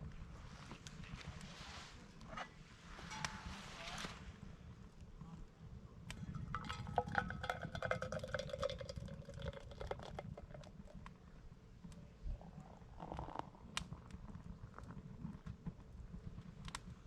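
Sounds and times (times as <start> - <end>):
low rumble of flame: 0.0 - 17.0
campfire crackling and popping: 6.0 - 12.0, 12.7 - 17.0.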